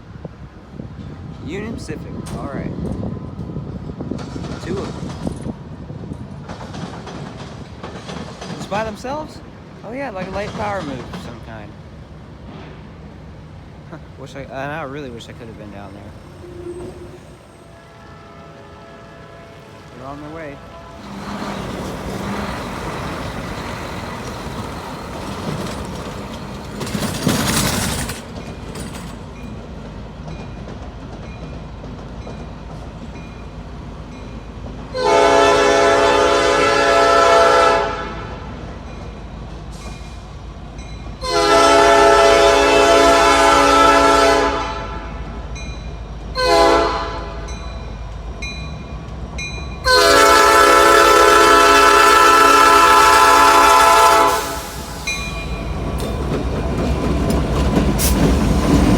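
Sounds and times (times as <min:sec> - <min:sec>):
train rumbling: 0:00.0 - 0:58.9
locomotive air horn blasts: 0:16.4 - 0:19.9, 0:20.6 - 0:21.6, 0:34.9 - 0:38.4, 0:41.2 - 0:45.3, 0:46.4 - 0:47.4, 0:49.8 - 0:55.0.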